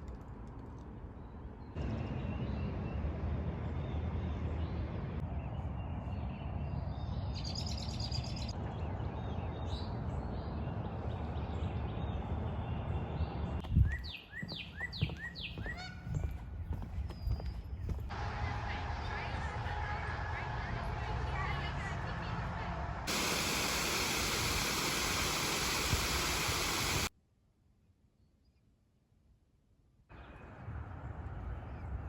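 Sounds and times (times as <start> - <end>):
low outdoor rumble: 0.0 - 7.3, 15.0 - 27.1, 30.1 - 32.0
songbirds chirping and singing: 5.6 - 18.0.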